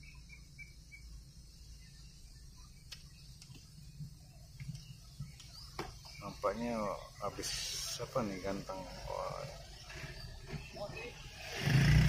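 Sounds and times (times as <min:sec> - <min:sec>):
faint high chirps: 0:00.0 - 0:11.6
faint clicks: 0:02.8 - 0:03.7.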